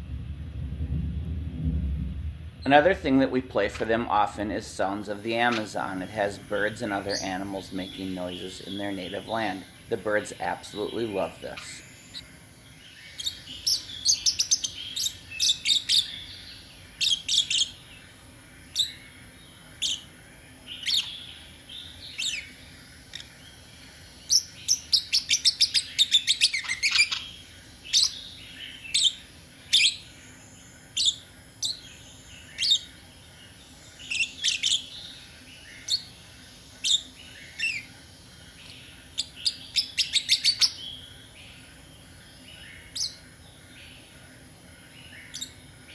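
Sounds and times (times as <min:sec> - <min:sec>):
birds chirping and trilling: 0:02.6 - 0:45.9.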